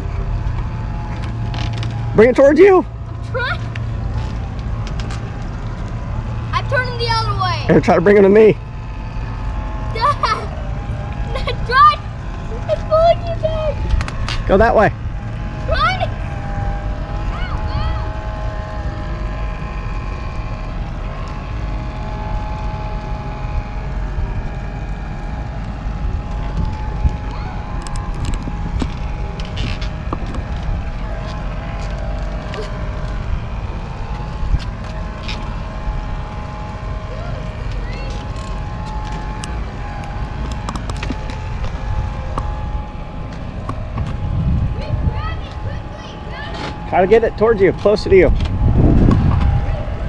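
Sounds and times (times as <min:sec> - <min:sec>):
thin steady whine: 0:00.0 - 0:50.0
wind buffeting microphone: 0:08.7 - 0:50.0
sharp clicks: 0:39.1 - 0:42.5.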